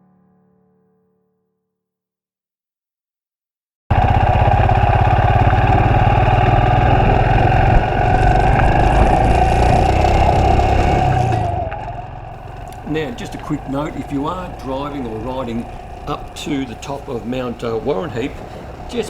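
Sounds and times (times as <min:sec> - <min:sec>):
motorcycle engine running: 0:03.9 - 0:19.0.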